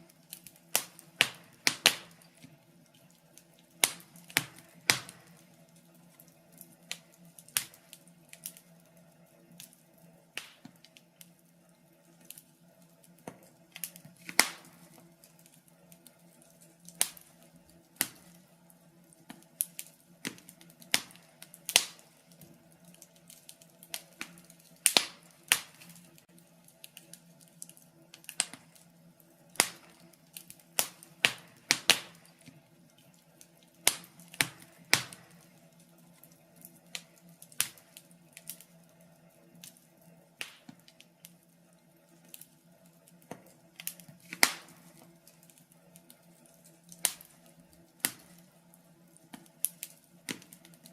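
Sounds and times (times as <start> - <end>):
faint steady hum: 0.0 - 50.9
wood fire crackling: 0.0 - 50.9.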